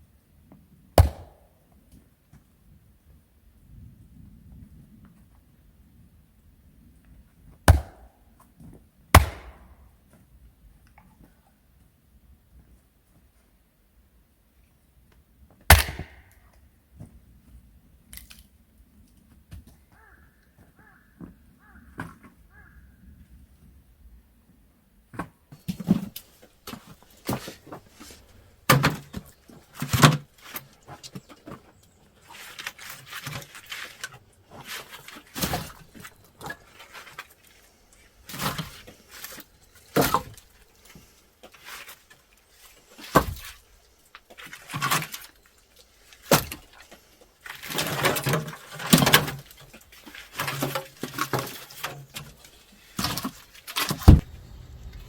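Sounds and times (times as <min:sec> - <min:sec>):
rough scraping: 0:25.7 - 0:43.6.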